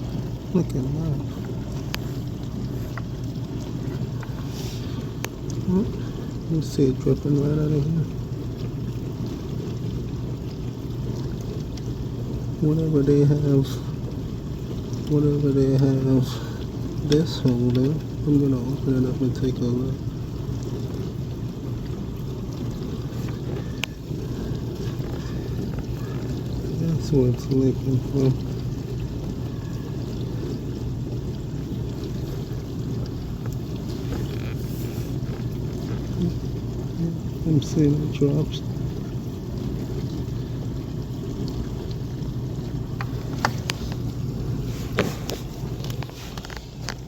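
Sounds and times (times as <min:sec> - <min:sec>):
dishwasher humming and rumbling: 0:00.0 - 0:47.0
water moving inside dishwasher: 0:00.0 - 0:47.0
light clicks and taps: 0:01.3 - 0:03.2, 0:23.0 - 0:26.7, 0:43.0 - 0:44.1, 0:44.9 - 0:47.0.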